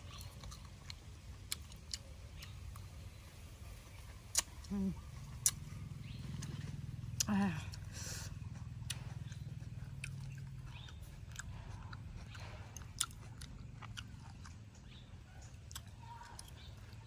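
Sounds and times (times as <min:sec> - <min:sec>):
low steady hum: 0:00.0 - 0:17.0
person chewing food: 0:00.0 - 0:17.0.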